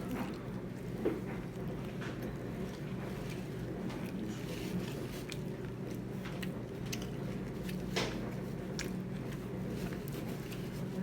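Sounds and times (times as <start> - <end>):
low background hum: 0.0 - 11.0
person chewing food: 4.0 - 10.6.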